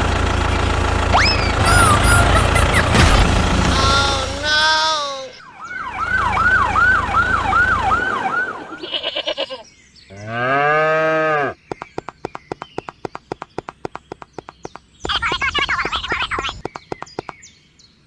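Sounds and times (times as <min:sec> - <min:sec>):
siren wailing: 0:01.1 - 0:04.2, 0:05.3 - 0:09.0
sheep or goat bleating: 0:08.8 - 0:09.6
fast run of clicks: 0:11.7 - 0:17.4.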